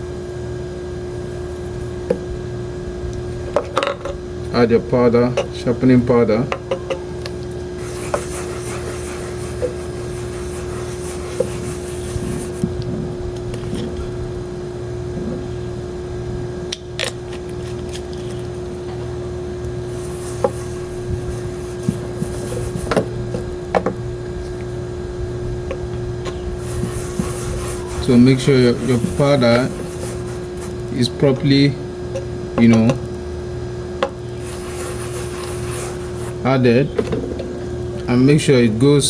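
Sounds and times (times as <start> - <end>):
steady hum: 0.0 - 39.0
rubbing and scraping on stone: 7.8 - 12.7, 19.9 - 23.5, 26.6 - 30.9, 34.4 - 36.4.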